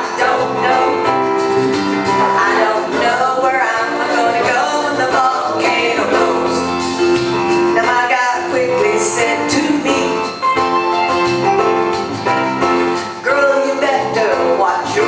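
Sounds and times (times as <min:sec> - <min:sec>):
country music instrumental backing: 0:00.0 - 0:15.0
person singing: 0:02.1 - 0:06.8.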